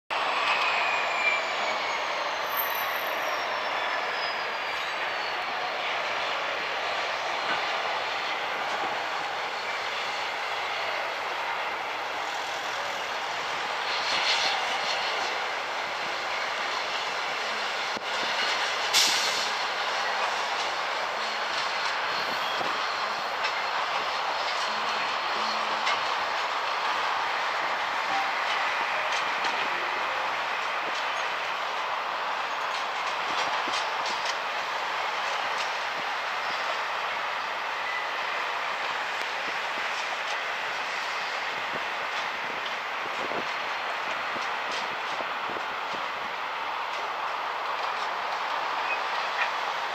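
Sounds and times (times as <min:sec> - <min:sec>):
high squeal gliding down: 0:00.1 - 0:10.9
train wheel and track noise: 0:00.1 - 0:49.9.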